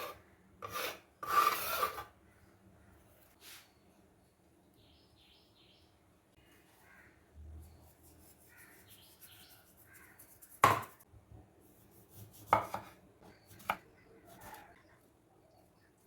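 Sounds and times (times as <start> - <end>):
birds chirping faintly: 2.2 - 10.6
knife chopping on cutting board: 12.5 - 12.9.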